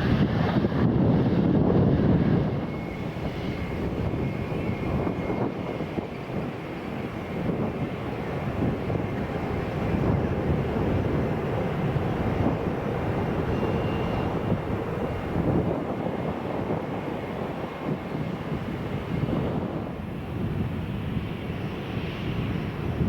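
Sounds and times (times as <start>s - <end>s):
jet engine noise: 0.0s - 23.0s
faint high whine: 12.4s - 15.8s.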